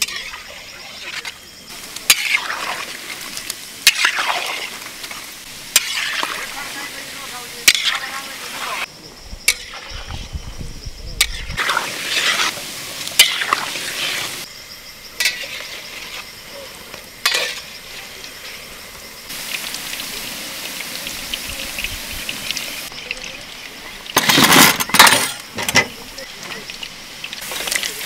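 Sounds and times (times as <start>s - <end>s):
food sizzling in a pan: 0.0s - 10.3s, 11.2s - 24.5s, 25.2s - 28.0s
scraping and clattering: 24.2s - 26.6s.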